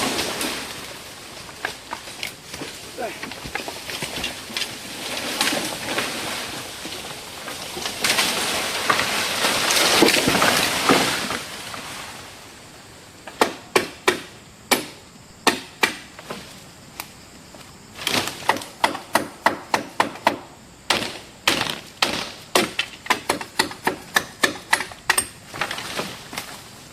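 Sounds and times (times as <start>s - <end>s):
loud rustling and scraping: 0.0s - 12.4s.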